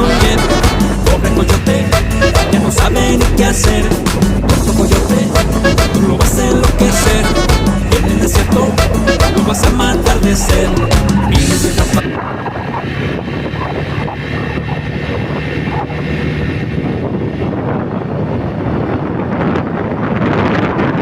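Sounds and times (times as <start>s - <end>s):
music: 0.0s - 12.2s
motorcycle engine running: 0.0s - 20.4s
wind rushing over microphone: 0.0s - 21.0s.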